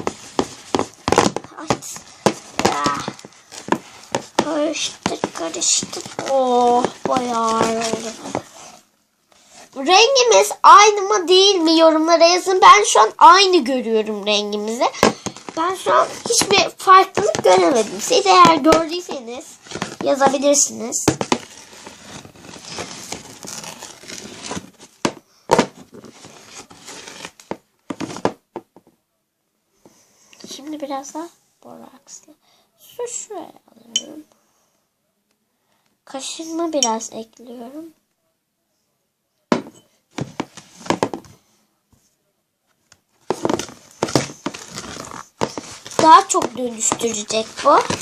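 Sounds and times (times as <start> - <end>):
slime crinkling and crackling: 0.0 - 8.8, 14.2 - 28.2, 43.3 - 48.0
knock: 39.5 - 41.3.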